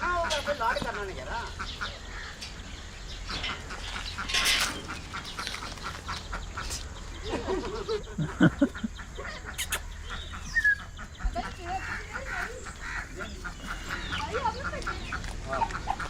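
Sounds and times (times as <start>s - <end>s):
poultry quacking and clucking: 0.0s - 16.0s.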